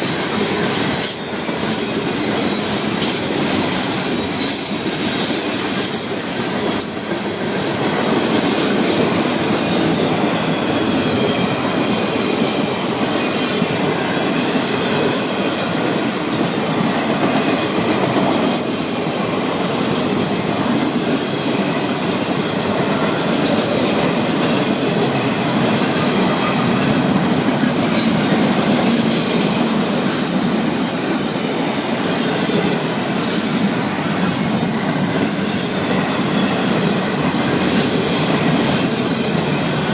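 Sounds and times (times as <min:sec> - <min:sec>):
freight train wheels clattering: 0:00.0 - 0:39.9
high-pitched wheel squeal: 0:18.4 - 0:22.1.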